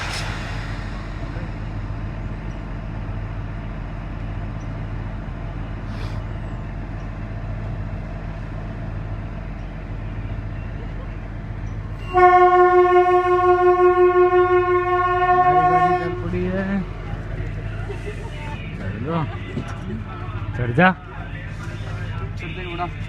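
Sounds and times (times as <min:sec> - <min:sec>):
low vehicle rumble: 0:00.0 - 0:23.0
train horn: 0:12.1 - 0:16.5.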